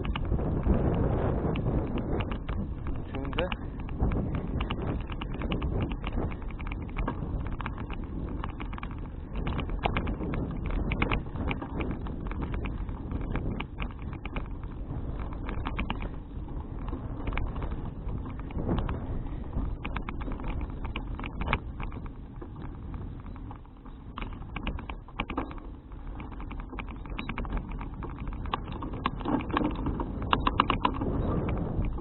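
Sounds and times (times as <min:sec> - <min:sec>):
bicycle road rumble: 0:00.0 - 0:32.0
bike ticking and rattling: 0:00.0 - 0:32.0
wind buffeting microphone: 0:00.0 - 0:32.0.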